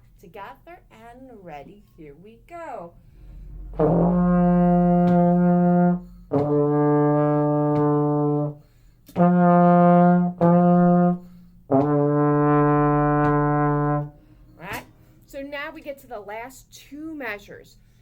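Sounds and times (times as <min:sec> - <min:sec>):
trombone playing slow tune: 0:03.0 - 0:14.4.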